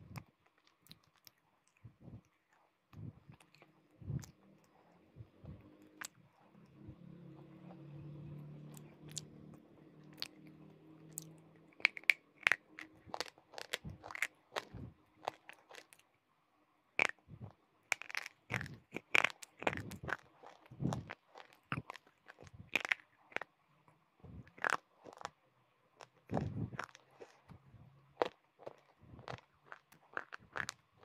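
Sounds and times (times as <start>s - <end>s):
crunchy chewing: 0.1s - 16.1s, 17.9s - 23.6s, 24.4s - 25.4s, 26.0s - 31.0s
low hum: 2.9s - 11.8s.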